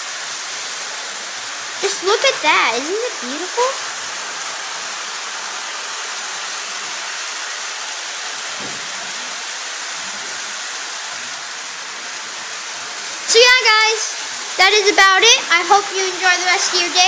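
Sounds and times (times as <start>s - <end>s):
toy train running on track: 0.0s - 17.0s.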